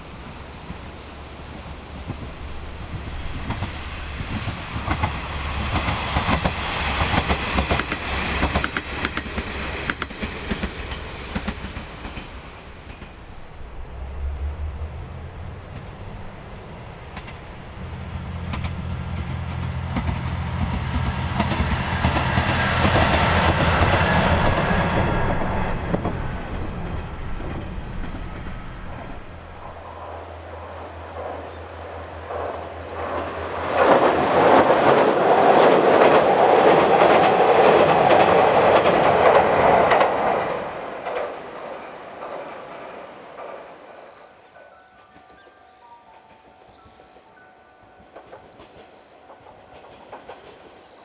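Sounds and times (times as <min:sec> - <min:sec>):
train wheels clacking on rails: 0:00.0 - 0:45.5, 0:46.1 - 0:51.0
diesel engine drone: 0:13.2 - 0:30.1.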